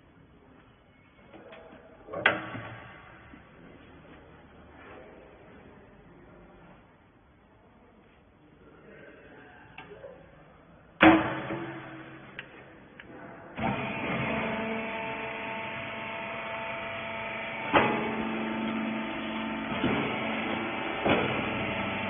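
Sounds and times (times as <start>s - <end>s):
loud bang: 11.0s - 12.4s
baler machine humming: 11.0s - 22.0s.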